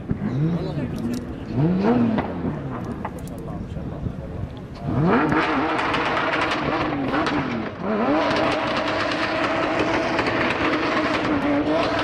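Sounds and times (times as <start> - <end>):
engine revving hard: 0.3 - 2.8, 4.8 - 12.0
wheels spinning: 4.8 - 12.0.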